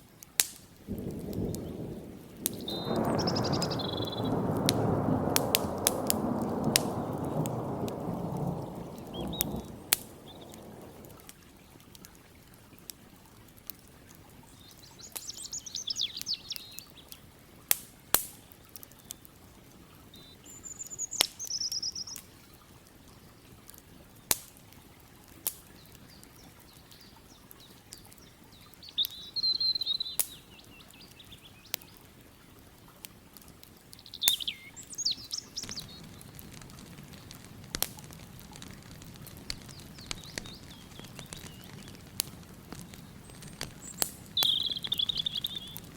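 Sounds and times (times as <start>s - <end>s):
campfire crackling pops: 0.0s - 45.9s
songbirds warbling: 1.0s - 11.2s, 14.5s - 17.2s, 25.8s - 32.0s, 33.9s - 45.9s.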